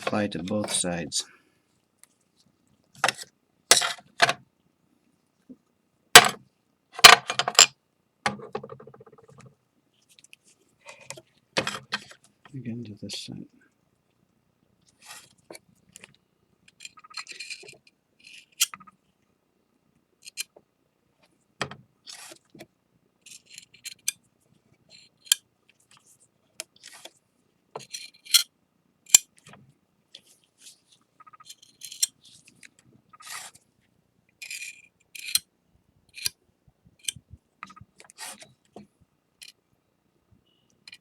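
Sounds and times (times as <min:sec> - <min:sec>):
small tool scraping paste: 0:26.8 - 0:27.2, 0:33.2 - 0:33.6, 0:38.1 - 0:38.6.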